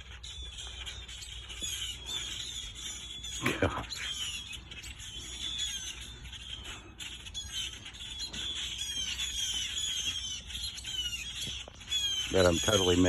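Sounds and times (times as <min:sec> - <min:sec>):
small birds alarm calls: 0:00.0 - 0:13.0.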